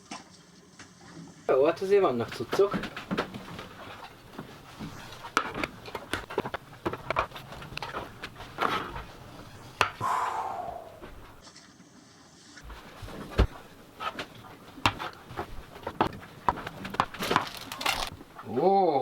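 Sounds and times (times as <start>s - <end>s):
plastic rustling: 12.6s - 18.4s.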